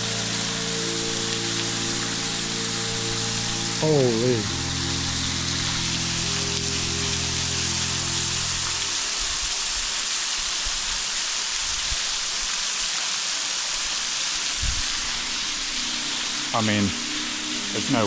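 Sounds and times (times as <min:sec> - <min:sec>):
low held musical chord: 0:00.0 - 0:09.6, 0:14.3 - 0:18.0
rushing water hiss: 0:00.0 - 0:18.0.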